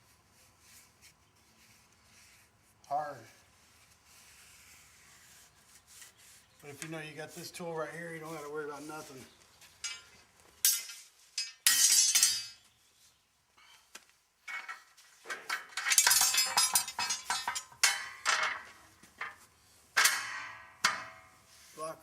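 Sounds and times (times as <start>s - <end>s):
metal parts clinking and scraping: 9.8s - 12.6s, 14.5s - 19.4s.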